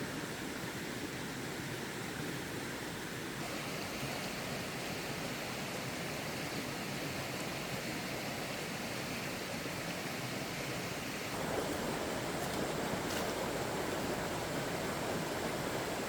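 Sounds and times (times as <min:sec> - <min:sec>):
steady rushing noise: 0:10.6 - 0:16.0.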